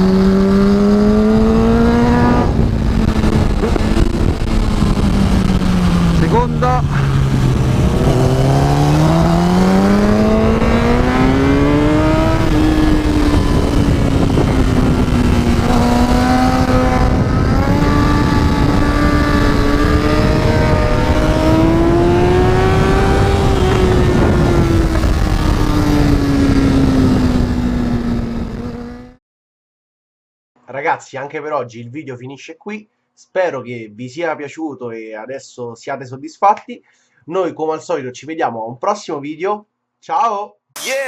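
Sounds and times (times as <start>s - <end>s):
motorcycle engine accelerating: 0.0s - 29.2s
wind rushing past: 0.1s - 29.1s.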